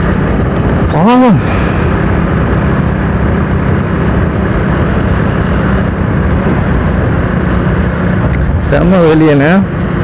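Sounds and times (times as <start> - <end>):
motorcycle engine hum: 0.0 - 10.0
road and wind noise: 0.0 - 10.0.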